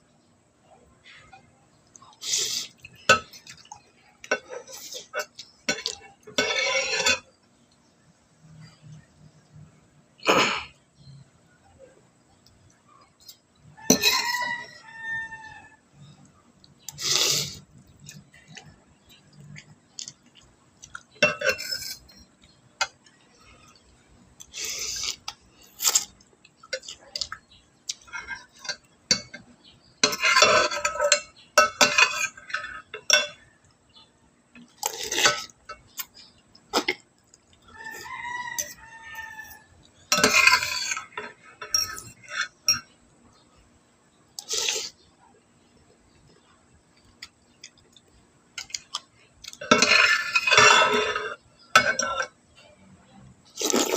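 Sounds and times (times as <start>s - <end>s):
utensils clinking against dishes: 2.3s - 7.3s, 13.2s - 14.6s, 20.9s - 23.0s, 25.8s - 33.5s, 38.6s - 43.0s, 49.4s - 52.7s
rooster crowing: 13.7s - 16.0s, 37.7s - 39.8s
slurping and mouth noises: 16.8s - 18.6s, 24.4s - 26.3s, 44.4s - 45.0s, 53.5s - 53.9s.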